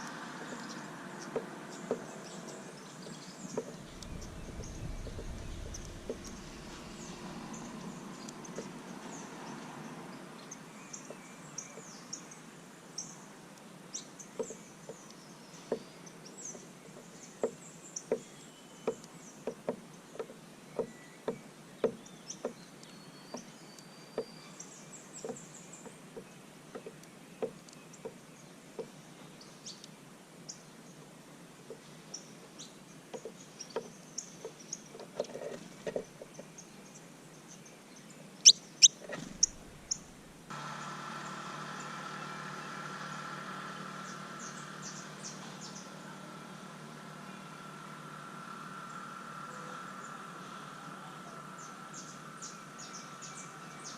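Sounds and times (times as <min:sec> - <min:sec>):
high bird chirps: 0:38.4 - 0:40.2
beaks pecking at feeder: 0:38.8 - 0:40.2.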